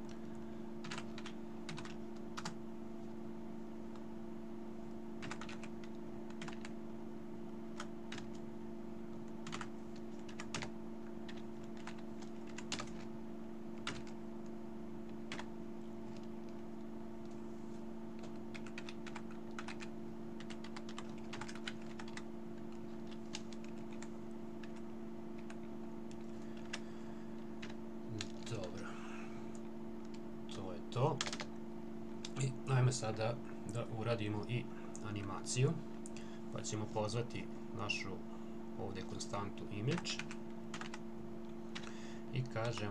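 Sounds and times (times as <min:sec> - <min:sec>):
steady low hum: 0:00.0 - 0:42.9
typing on computer keyboard: 0:00.8 - 0:02.6, 0:05.2 - 0:06.7, 0:07.8 - 0:08.4, 0:09.4 - 0:10.7, 0:11.3 - 0:13.1, 0:13.8 - 0:14.2, 0:15.3 - 0:15.5, 0:18.2 - 0:22.2, 0:31.2 - 0:31.5, 0:40.0 - 0:41.0.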